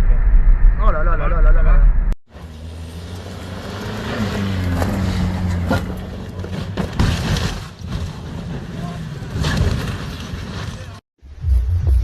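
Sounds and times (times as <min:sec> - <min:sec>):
road noise: 0:01.0 - 0:11.8
car engine hum: 0:02.3 - 0:07.0.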